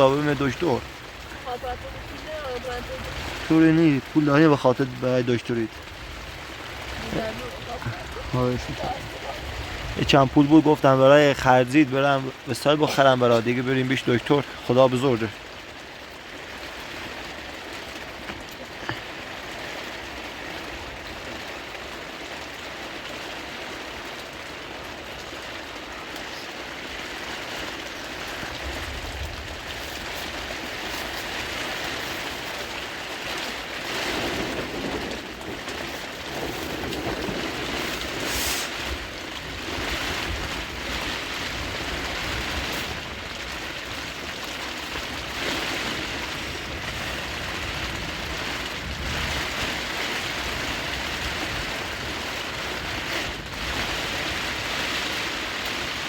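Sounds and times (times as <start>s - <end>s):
heavy rain hissing: 0.0s - 56.0s
wind rumble on microphone: 5.7s - 10.8s, 27.7s - 56.0s.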